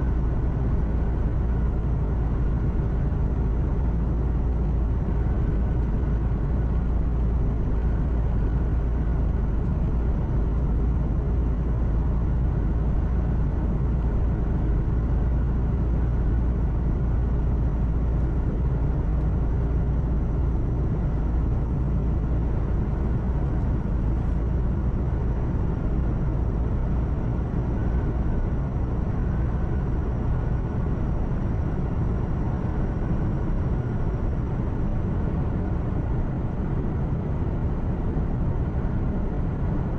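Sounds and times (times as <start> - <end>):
road and tyre noise: 0.0 - 39.9
truck engine drone: 0.0 - 39.9.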